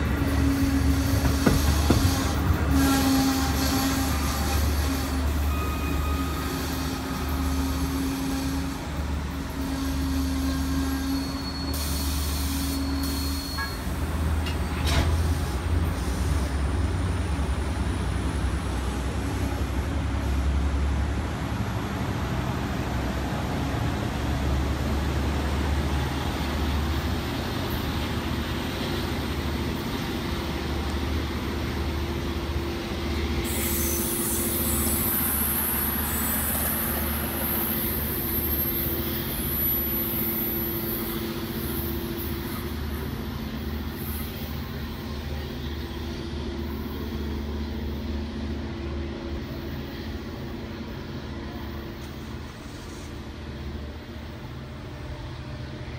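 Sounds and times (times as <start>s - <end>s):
diesel train engine rumble: 0.0s - 55.9s.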